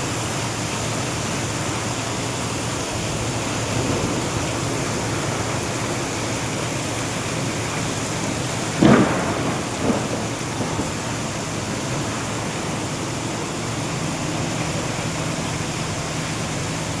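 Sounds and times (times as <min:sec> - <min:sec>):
heavy rain falling: 0:00.0 - 0:17.0
short loud bang: 0:08.8 - 0:11.9.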